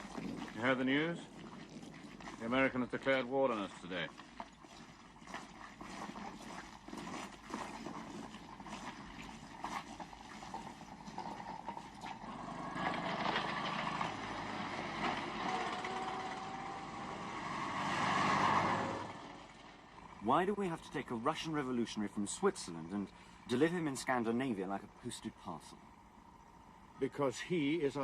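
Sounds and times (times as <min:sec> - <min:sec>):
vehicle engine running: 0:11.4 - 0:28.0.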